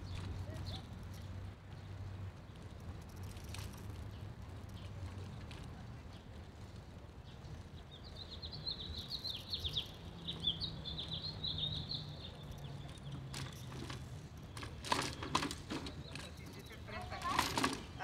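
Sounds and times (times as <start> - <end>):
small songbird chirping: 7.2 - 13.7.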